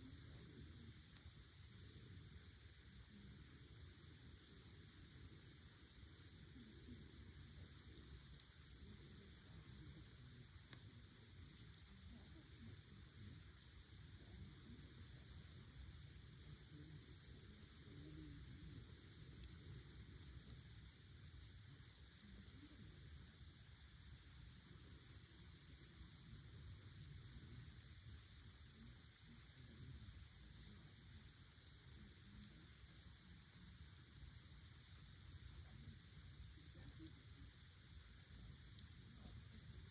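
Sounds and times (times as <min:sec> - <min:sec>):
crickets chirring: 0:00.1 - 0:39.9.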